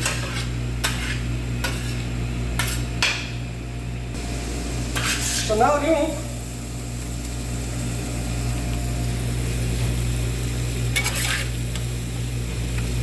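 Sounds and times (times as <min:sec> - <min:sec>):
utensil scraping a pan: 0:00.0 - 0:03.2, 0:04.9 - 0:05.6, 0:10.9 - 0:11.6
low mechanical hum: 0:00.0 - 0:13.0.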